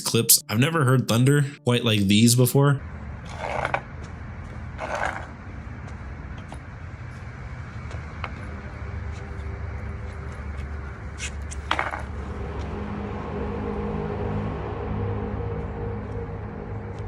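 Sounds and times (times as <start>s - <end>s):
faint steady tones: 0.0s - 17.0s
low steady rumble: 2.8s - 17.0s
rushing bursts of noise: 11.2s - 17.0s.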